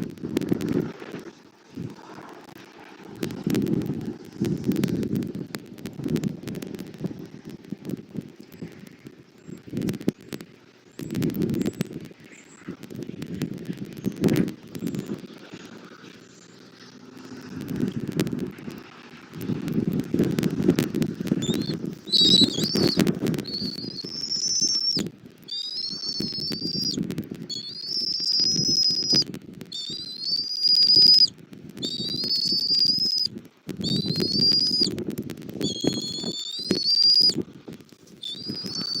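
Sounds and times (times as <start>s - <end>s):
wind buffeting microphone: 3.0s - 16.0s, 17.1s - 39.0s
eagles whistled calls: 21.4s - 34.9s, 35.6s - 37.4s, 38.2s - 39.0s.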